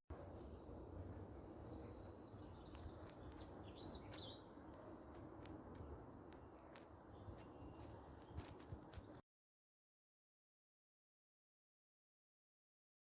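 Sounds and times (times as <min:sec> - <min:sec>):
songbirds chirping: 0:00.1 - 0:09.2.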